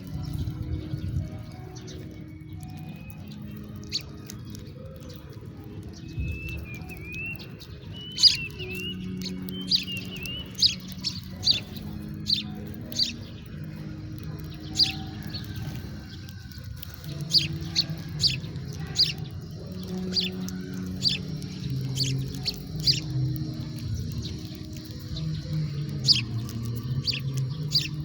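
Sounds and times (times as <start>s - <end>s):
soft background music: 0.0s - 28.0s
sparrow chirping: 0.0s - 28.0s.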